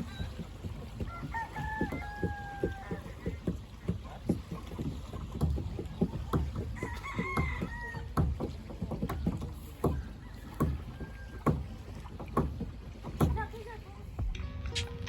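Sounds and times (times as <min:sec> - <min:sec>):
hammering knocks: 0:00.0 - 0:14.9
rooster crowing: 0:01.1 - 0:03.0, 0:06.8 - 0:08.1.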